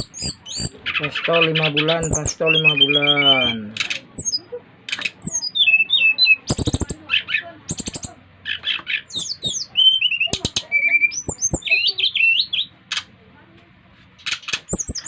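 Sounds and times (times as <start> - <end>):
songbird whistled notes: 0.0 - 0.7, 4.2 - 4.5, 5.2 - 7.0, 7.7 - 8.1, 9.1 - 12.7, 14.7 - 15.0
bird dry rattling phrases: 0.0 - 12.3.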